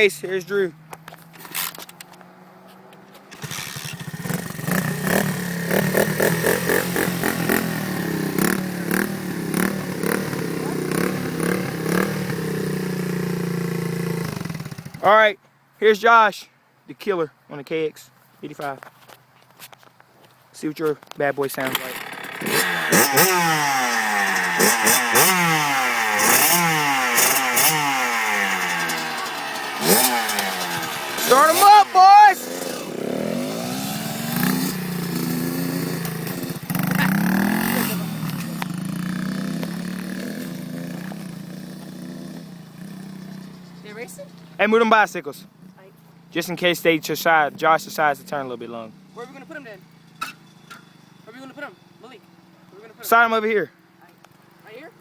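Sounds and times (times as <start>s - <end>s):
dirt bike engine revving: 1.5s - 15.1s, 21.6s - 44.8s.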